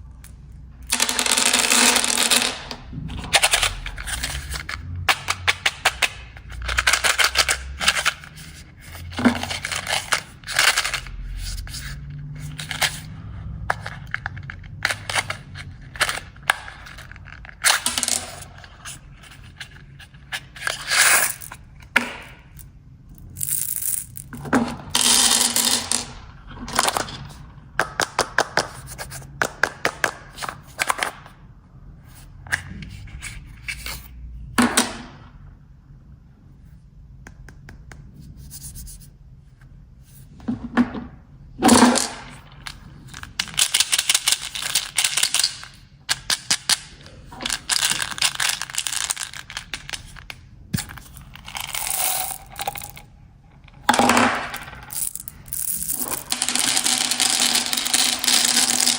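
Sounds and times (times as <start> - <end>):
snack packets crinkling: 47.4 - 50.2.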